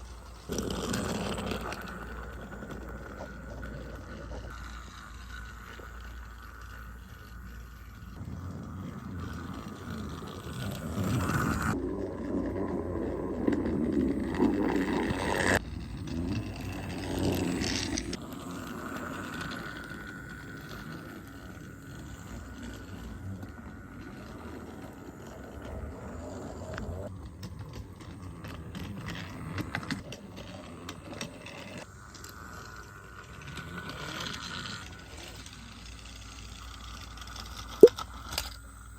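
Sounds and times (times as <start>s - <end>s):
toy trains motors whirring: 0.0s - 38.9s
wheels rattling over track: 0.0s - 38.9s.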